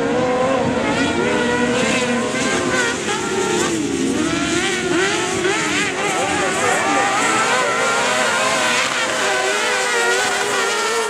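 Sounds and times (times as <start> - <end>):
kart engines revving: 0.0 - 11.0.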